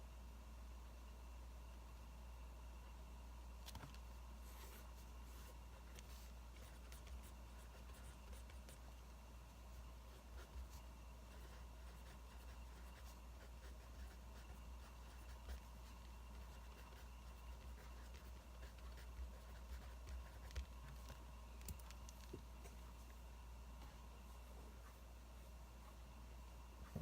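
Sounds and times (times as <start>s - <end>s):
steady low hum: 0.0s - 27.0s
pen scratching on paper: 4.6s - 8.9s, 10.1s - 21.2s.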